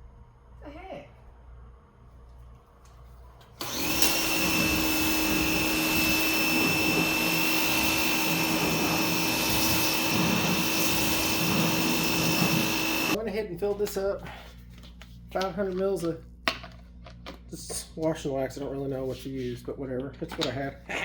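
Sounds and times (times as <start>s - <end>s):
electric pressure washer running: 3.6s - 13.2s
water jet hissing: 3.6s - 13.2s.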